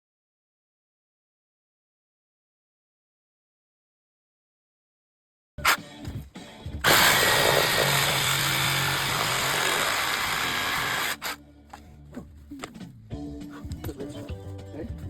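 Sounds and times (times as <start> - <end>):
power tool running: 6.8 - 11.4.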